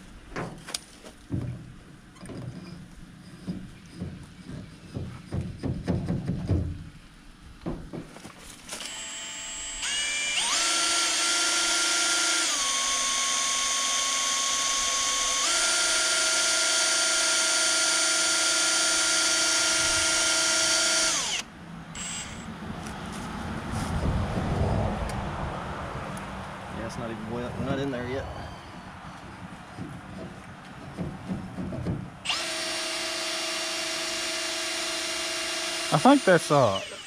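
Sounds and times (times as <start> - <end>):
electric pump motor whining: 8.7 - 22.5, 32.2 - 37.0.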